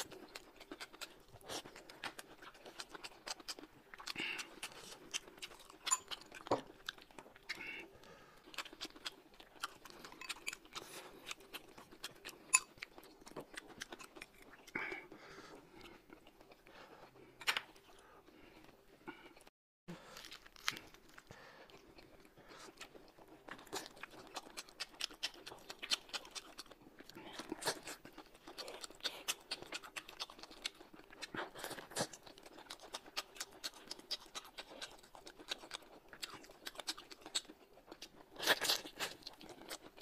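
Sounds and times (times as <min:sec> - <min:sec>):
people chewing and crunching: 0:00.0 - 0:40.0.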